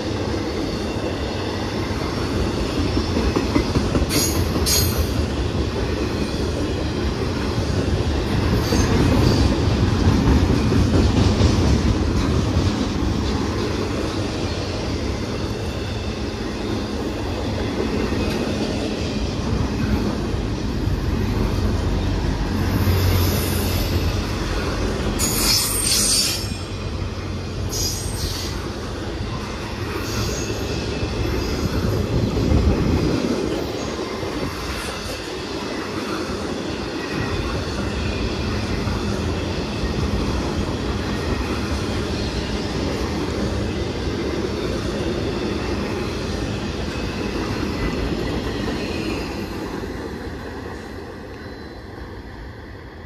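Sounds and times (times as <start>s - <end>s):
freight train cars rumbling: 0.0s - 53.0s
wheel squeals: 25.2s - 26.8s.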